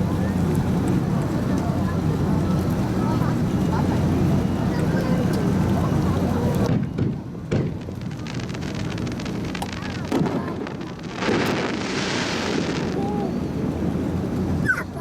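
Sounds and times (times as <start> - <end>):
fireworks booming: 6.7 - 14.0
fireworks crackling: 6.7 - 14.6.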